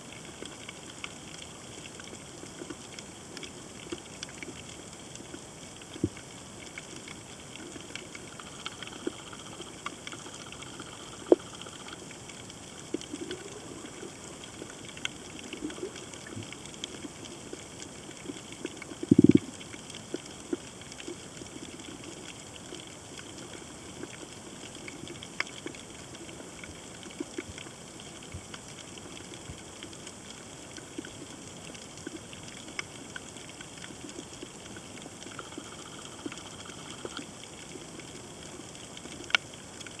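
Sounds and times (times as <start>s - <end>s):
sharp clicks and pops: 7.7s - 17.1s, 18.2s - 21.8s.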